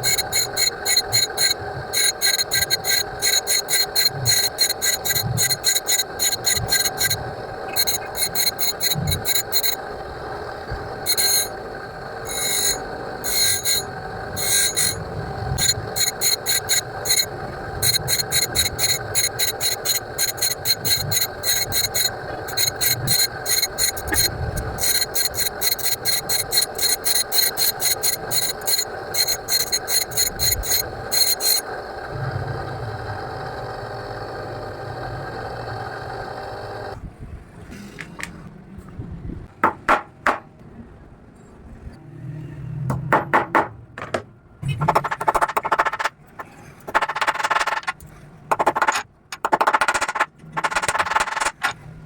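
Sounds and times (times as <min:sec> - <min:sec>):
scroll saw blade cutting: 0:00.0 - 0:09.8, 0:11.1 - 0:11.6, 0:12.2 - 0:31.7
small electric motor humming: 0:00.0 - 0:37.0.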